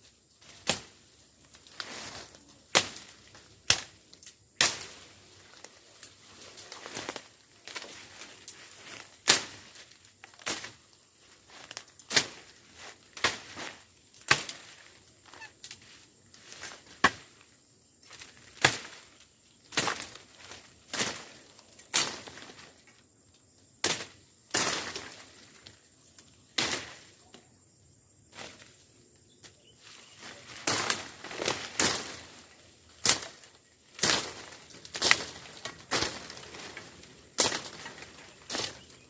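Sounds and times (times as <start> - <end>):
brush rustling: 0.1 - 17.4, 29.5 - 39.0.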